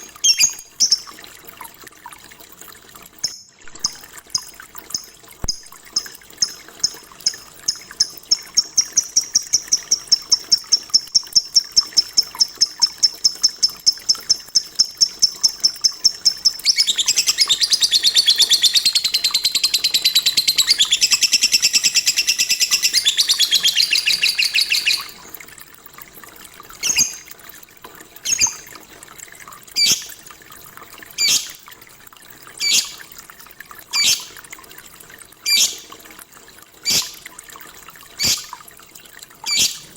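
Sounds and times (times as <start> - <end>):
lovebird chirping: 0.1 - 1.0, 16.4 - 25.2, 26.8 - 27.3, 31.2 - 31.6, 32.6 - 32.9, 34.0 - 34.2, 35.5 - 35.8, 36.9 - 37.2, 38.2 - 38.5, 39.5 - 39.8.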